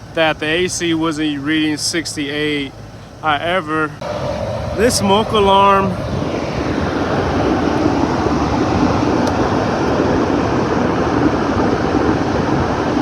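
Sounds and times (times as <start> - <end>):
faint low hum: 4.0 - 9.2
rooftop unit air rush: 4.0 - 11.4.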